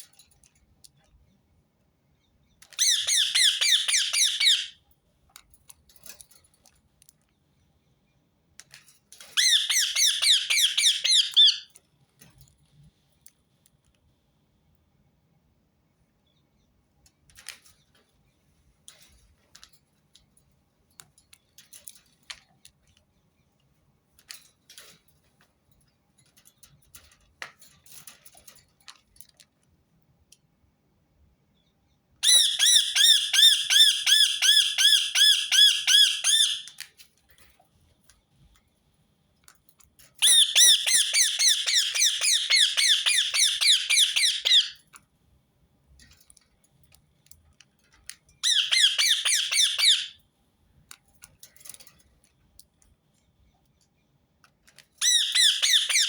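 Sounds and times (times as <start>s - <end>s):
parakeet squawking: 2.8s - 4.7s, 9.4s - 11.6s, 32.2s - 36.7s, 40.2s - 44.8s, 48.4s - 50.1s, 55.0s - 56.0s.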